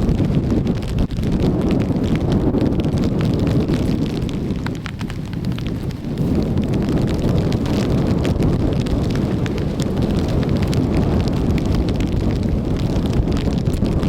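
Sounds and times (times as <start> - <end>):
hard rain ticking: 0.0 - 14.0
wind buffeting microphone: 0.0 - 14.0.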